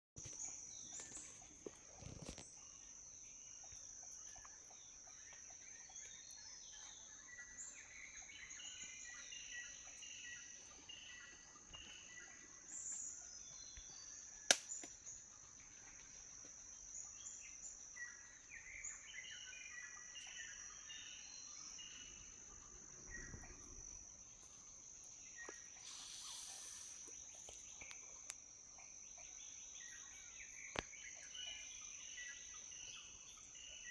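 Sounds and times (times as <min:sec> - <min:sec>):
high-pitched insect drone: 0:15.0 - 0:33.9
short bird-like chirps: 0:25.4 - 0:28.0.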